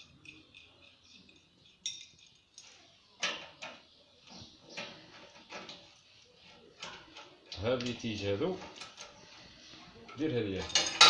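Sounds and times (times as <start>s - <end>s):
small metal parts clinking: 0.0s - 3.8s, 10.5s - 11.0s.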